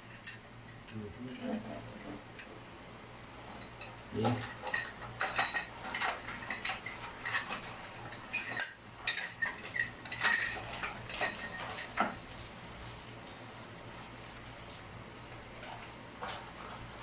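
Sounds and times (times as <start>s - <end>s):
small metal parts clinking: 1.2s - 1.7s.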